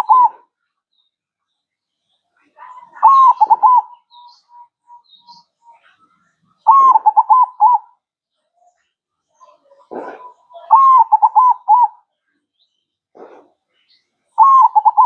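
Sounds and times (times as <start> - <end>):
dove cooing: 0.0 - 0.5, 2.7 - 5.2, 6.6 - 7.9, 9.7 - 12.0, 14.4 - 15.0.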